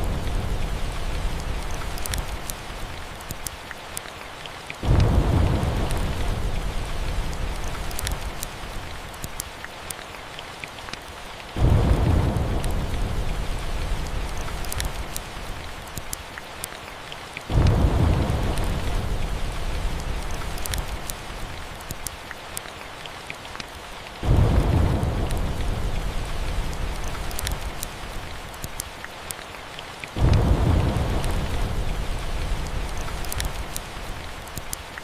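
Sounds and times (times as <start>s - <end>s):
thunder rumbling: 0.0s - 3.0s, 4.8s - 8.7s, 11.6s - 15.7s, 17.5s - 21.6s, 24.2s - 28.5s, 30.2s - 34.4s
small crackles: 0.0s - 11.7s, 12.3s - 17.8s, 18.4s - 35.0s
steady rain: 0.0s - 35.0s.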